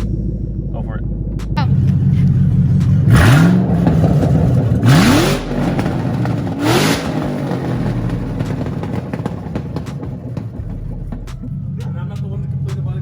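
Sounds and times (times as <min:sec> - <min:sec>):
car engine idling: 0:00.0 - 0:13.0
car engine revving: 0:00.0 - 0:13.0.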